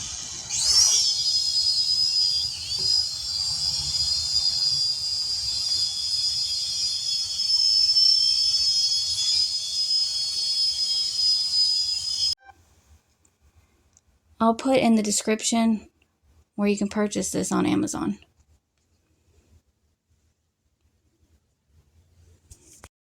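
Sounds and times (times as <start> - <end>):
quadcopter motors whining: 0.0 - 12.4.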